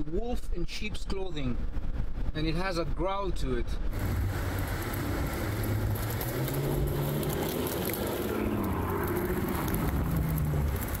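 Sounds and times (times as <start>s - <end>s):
car engine accelerating: 3.9s - 11.0s.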